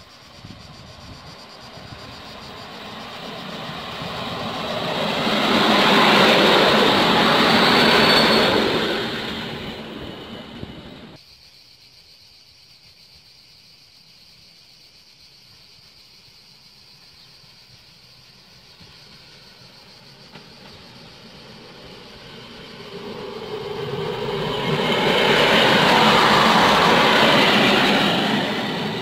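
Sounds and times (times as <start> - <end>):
train wheels rumbling on rails: 0.1 - 11.2, 18.3 - 29.0.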